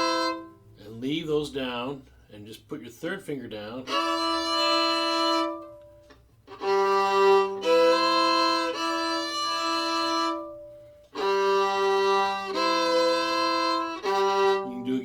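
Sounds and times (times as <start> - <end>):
fiddle playing double stops: 0.0 - 0.7, 3.9 - 15.0.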